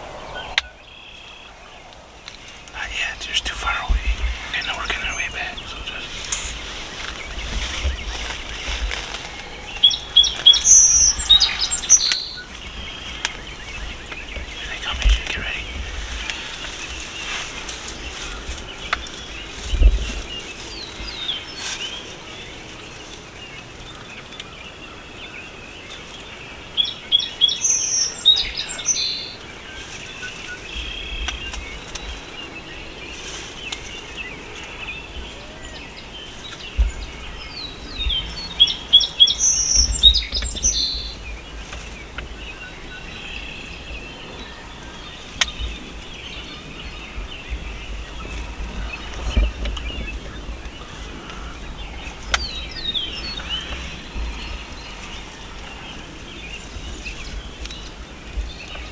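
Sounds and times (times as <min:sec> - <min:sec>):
faint bird chirping: 0:00.0 - 0:58.9
songbird singing high quick song: 0:09.4 - 0:16.4, 0:26.8 - 0:29.4, 0:36.6 - 0:41.3.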